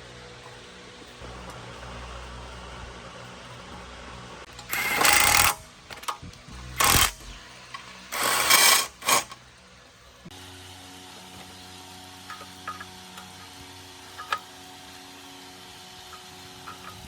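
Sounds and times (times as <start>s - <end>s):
harsh workshop tool bursts: 4.5s - 6.1s, 6.7s - 9.4s.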